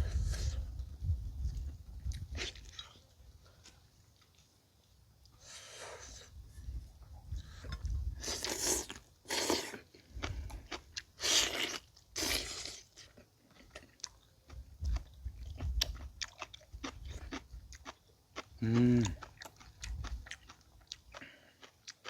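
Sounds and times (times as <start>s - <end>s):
person chewing with wet clicks: 7.3s - 22.0s.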